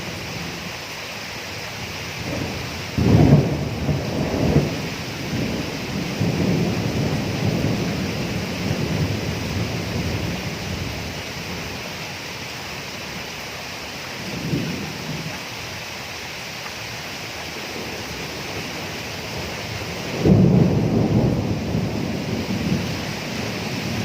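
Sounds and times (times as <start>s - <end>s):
rain hissing: 0.0s - 24.0s
thunder rumbling: 2.2s - 12.0s, 14.2s - 15.4s, 17.5s - 24.0s.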